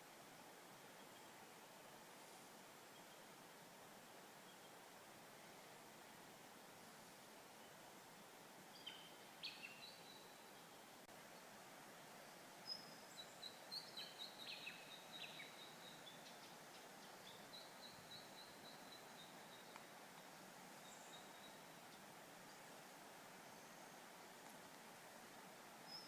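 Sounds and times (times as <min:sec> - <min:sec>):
faint wild birdsong: 0:00.0 - 0:26.0
steady background hiss: 0:00.0 - 0:26.0.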